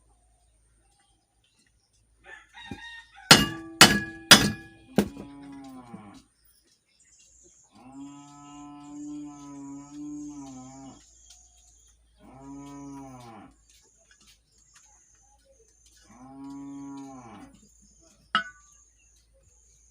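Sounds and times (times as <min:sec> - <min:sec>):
hammer tapping on metal shaft: 0:03.3 - 0:05.3, 0:18.4 - 0:18.7
cow mooing: 0:16.1 - 0:17.6.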